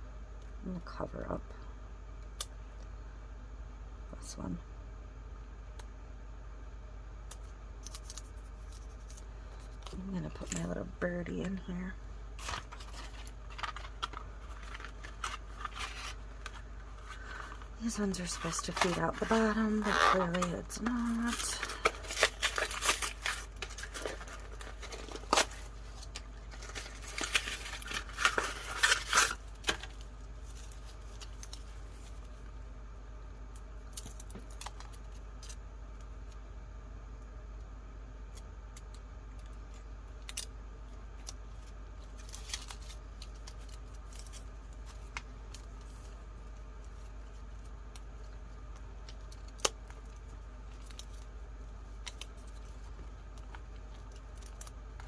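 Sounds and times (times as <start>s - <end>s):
low steady hum: 0.0s - 55.0s
paper rustling: 12.4s - 32.3s.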